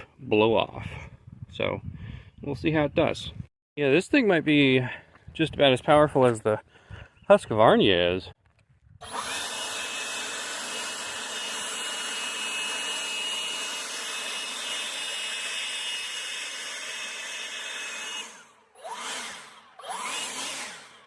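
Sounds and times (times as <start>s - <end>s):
electric leaf blower whining: 9.0s - 21.0s.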